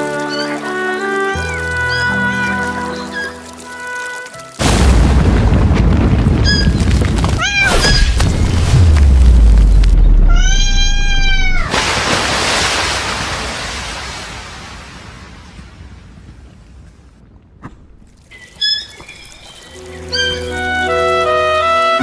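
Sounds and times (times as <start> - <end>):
loud rushing noise with rumble: 6.0 - 12.0
cat meowing: 10.1 - 11.7.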